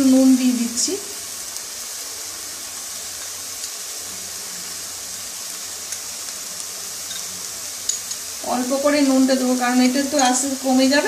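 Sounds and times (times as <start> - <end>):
paste sizzling in frying pan: 0.0 - 11.0.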